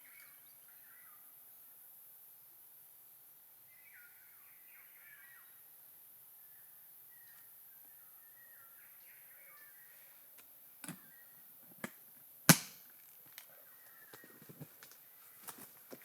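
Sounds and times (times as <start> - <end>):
clicks and knocks of handling: 11.7 - 13.5
sharp snap: 12.5 - 12.8.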